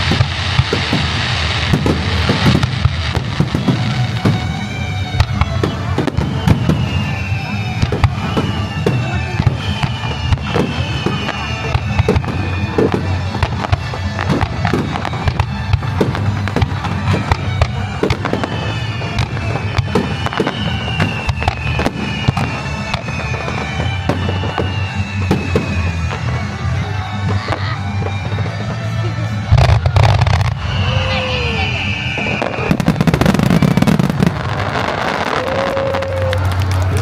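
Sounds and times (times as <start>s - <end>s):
falling firework whistles: 0.0s - 28.8s, 29.5s - 37.0s
fireworks bangs and crackling: 0.0s - 37.0s.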